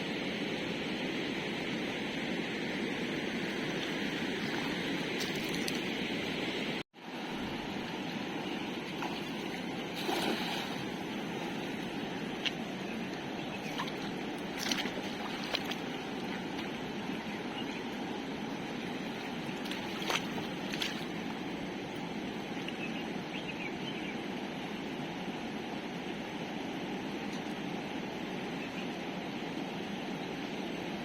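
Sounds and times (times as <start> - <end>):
sharp splashes or knocks: 9.0 - 11.0, 13.8 - 15.9.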